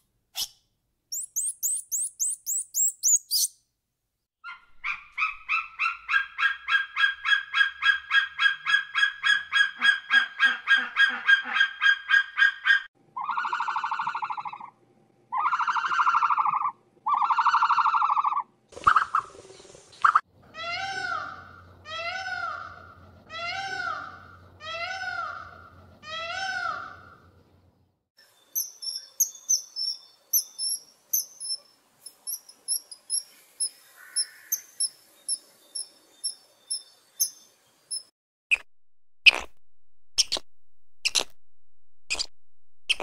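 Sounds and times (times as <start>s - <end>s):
quick high chirps: 0.4s - 3.5s.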